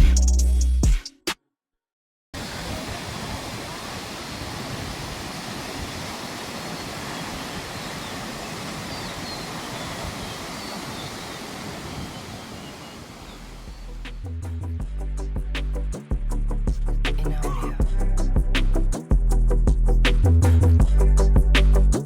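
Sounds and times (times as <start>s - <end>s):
rushing water: 2.4s - 14.2s.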